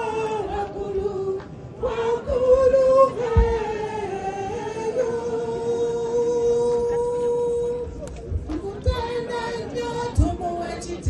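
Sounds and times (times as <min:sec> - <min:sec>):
short low thump: 0:03.4 - 0:03.6.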